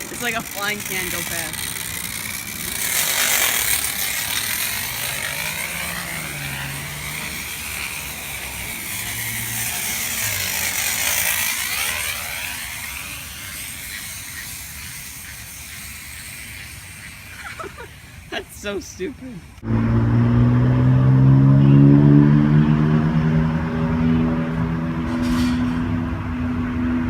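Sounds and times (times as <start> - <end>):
bicycle wheel ratcheting buzz: 0.0 - 18.4.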